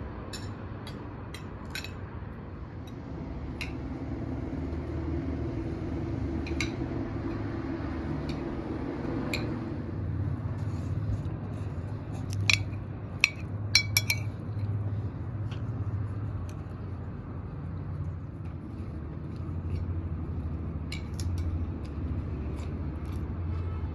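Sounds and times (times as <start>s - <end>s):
steady low hum: 0.0s - 23.9s
tableware clinking: 0.3s - 2.0s, 12.4s - 14.4s.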